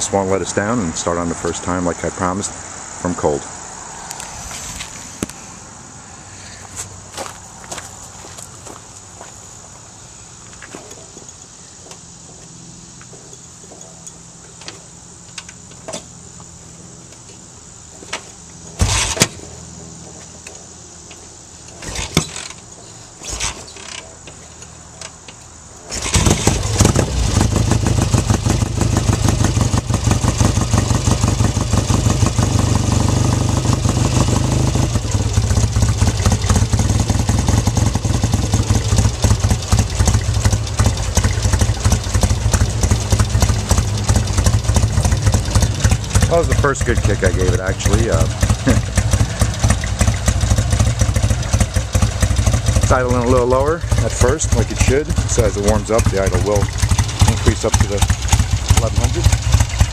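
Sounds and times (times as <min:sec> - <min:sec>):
motorcycle kick-start thumps: 0:18.0 - 0:19.4, 0:21.8 - 0:32.5, 0:34.9 - 0:59.9
motorcycle engine idling: 0:23.7 - 0:59.9.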